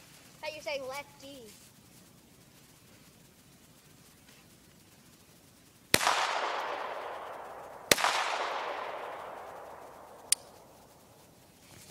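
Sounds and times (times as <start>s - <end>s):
handgun shots with echo: 6.0s - 7.2s, 7.9s - 9.4s.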